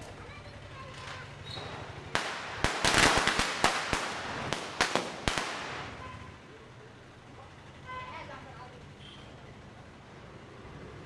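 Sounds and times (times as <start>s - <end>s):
crackling hiss: 0.0s - 6.5s
firecrackers banging: 0.0s - 6.7s.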